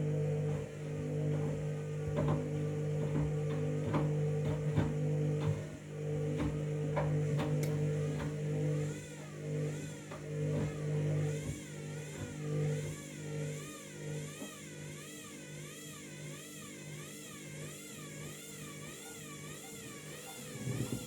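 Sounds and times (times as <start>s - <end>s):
washing machine motor hum: 0.0s - 21.0s
motor whine wavering: 6.0s - 21.0s.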